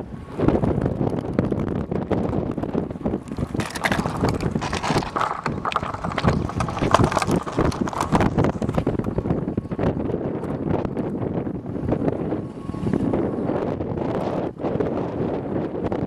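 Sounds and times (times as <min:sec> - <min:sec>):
gusty wind buffeting microphone: 0:00.4 - 0:16.0
knocks and rattles: 0:03.3 - 0:08.9.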